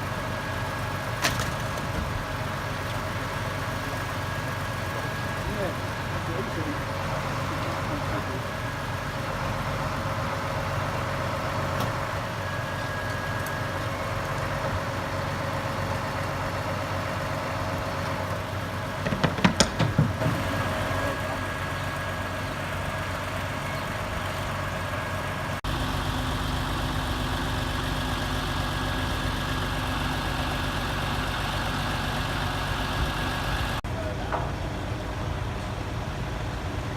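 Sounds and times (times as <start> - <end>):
heavy vehicle engines running: 0.0 - 36.9
loud knocks: 19.0 - 20.3.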